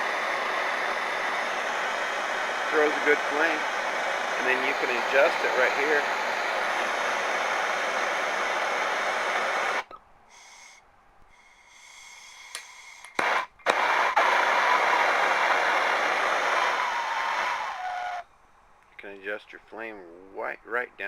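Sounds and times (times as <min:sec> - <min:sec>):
torch flame hissing: 0:00.0 - 0:10.8, 0:11.4 - 0:18.2
gas hissing: 0:00.0 - 0:18.2.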